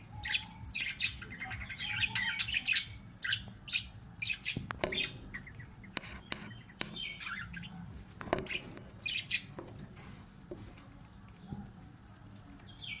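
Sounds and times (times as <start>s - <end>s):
budgerigars chirping: 0.0s - 9.6s.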